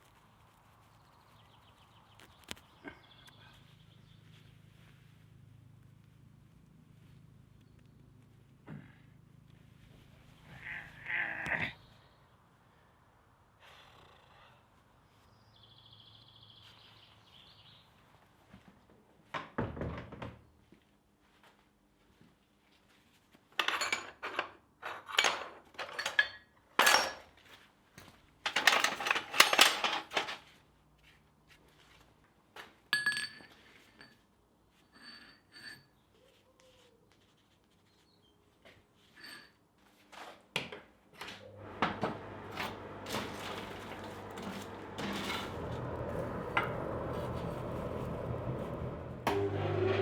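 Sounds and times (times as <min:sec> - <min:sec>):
metal tools clinking and clanking: 0:23.6 - 0:27.4, 0:28.4 - 0:30.5, 0:42.5 - 0:47.7.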